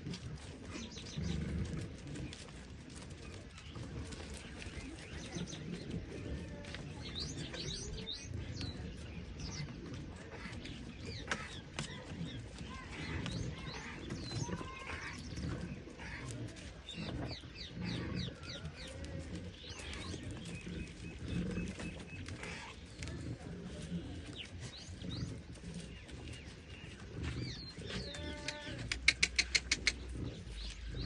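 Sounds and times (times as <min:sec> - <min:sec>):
small birds chirping: 0:00.0 - 0:31.0
steady low rumble: 0:29.0 - 0:31.0.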